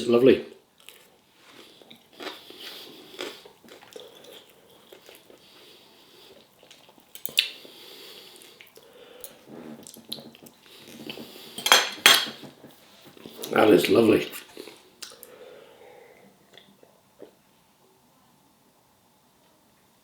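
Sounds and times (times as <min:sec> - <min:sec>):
person chewing: 0:00.8 - 0:11.7, 0:14.3 - 0:15.4.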